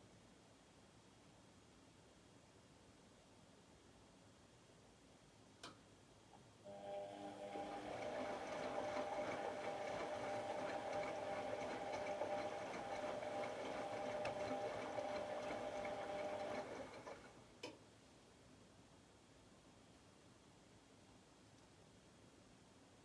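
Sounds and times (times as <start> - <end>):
washing machine motor whine: 6.7 - 17.4.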